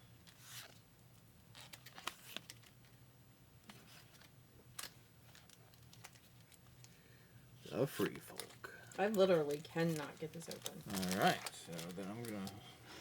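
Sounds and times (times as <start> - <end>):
foil pack crinkling: 3.9 - 7.0, 8.2 - 12.7.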